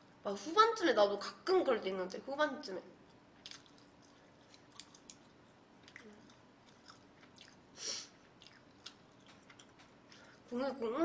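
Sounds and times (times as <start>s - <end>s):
close chewing with mouth clicks: 3.1s - 10.5s
short breath hiss: 7.8s - 8.2s.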